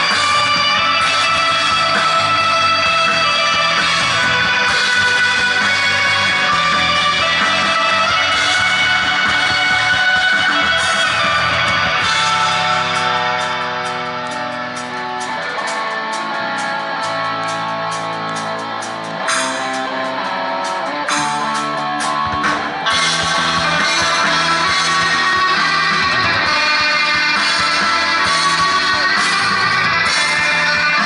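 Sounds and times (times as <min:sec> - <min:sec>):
held electric guitar notes: 0:00.0 - 0:31.0
rock band playing live: 0:00.0 - 0:31.0.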